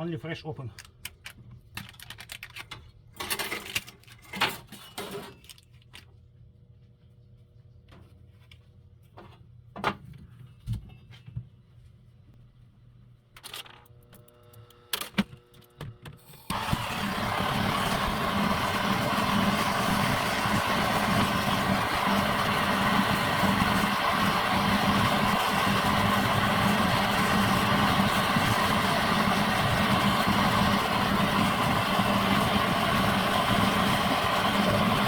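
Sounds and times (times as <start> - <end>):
tools clicking and clattering: 0.7 - 6.1
gas torch rushing: 16.3 - 35.0.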